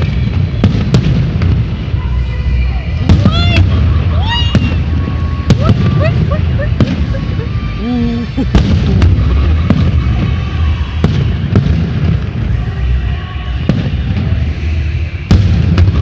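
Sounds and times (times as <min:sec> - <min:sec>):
low rumble of bursts: 0:00.0 - 0:16.0.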